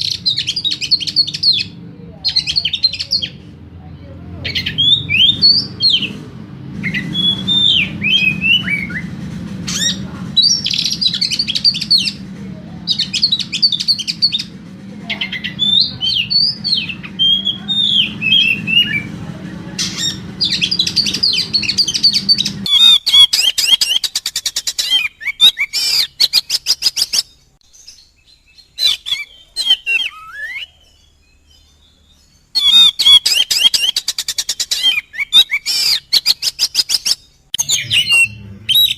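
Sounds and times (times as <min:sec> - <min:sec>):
bird singing whistled phrases: 0:04.5 - 0:06.1, 0:06.8 - 0:09.1, 0:15.3 - 0:19.1, 0:19.8 - 0:24.2, 0:24.8 - 0:27.3, 0:27.9 - 0:32.0, 0:32.6 - 0:38.9
low steady hum: 0:37.5 - 0:38.9.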